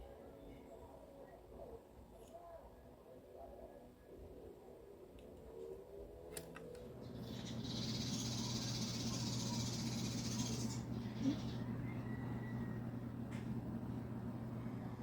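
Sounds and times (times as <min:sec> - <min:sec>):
computer hum: 0:06.8 - 0:15.0
computer fan rushing: 0:07.4 - 0:15.0.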